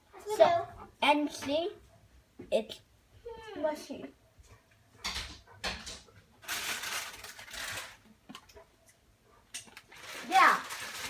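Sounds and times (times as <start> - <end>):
rustling crinkling handling noises: 6.0 - 8.6, 9.6 - 11.0.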